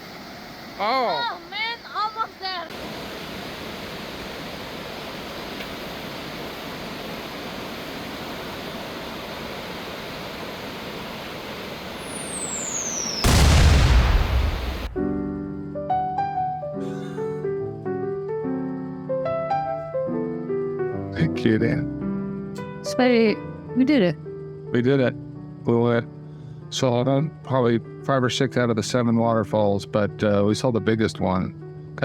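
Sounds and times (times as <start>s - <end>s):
whoosh with falling whistle: 11.9s - 15.2s
piano music: 15.0s - 24.0s.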